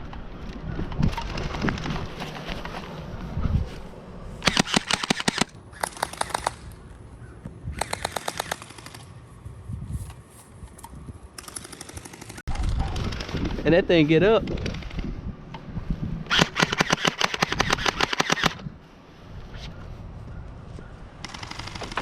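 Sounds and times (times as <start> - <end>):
gel blasters firing on full auto: 16.3 - 18.6.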